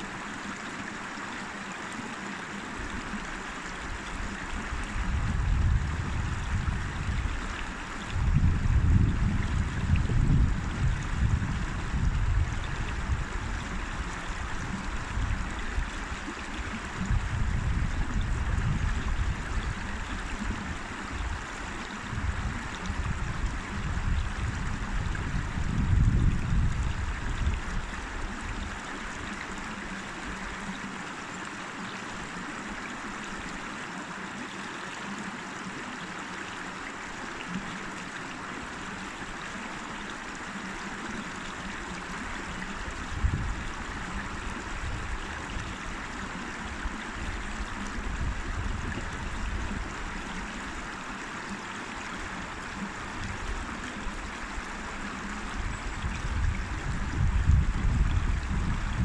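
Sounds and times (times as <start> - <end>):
river rushing and gurgling: 0.0 - 59.0.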